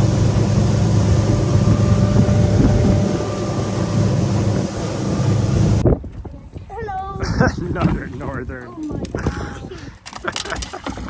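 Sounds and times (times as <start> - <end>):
hiss of wind and water: 0.0 - 5.8
outboard engine droning: 0.0 - 5.8.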